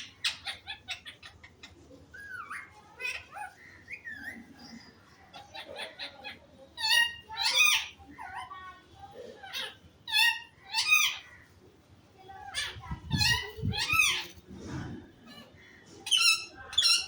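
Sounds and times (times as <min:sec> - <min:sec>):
parrot chattering: 0:00.0 - 0:04.4, 0:05.3 - 0:08.6, 0:09.4 - 0:11.4, 0:12.4 - 0:14.4, 0:15.4 - 0:17.0
parrot harsh calls: 0:00.0 - 0:04.6, 0:05.3 - 0:08.5, 0:09.4 - 0:11.5, 0:12.4 - 0:14.4, 0:15.2 - 0:17.0.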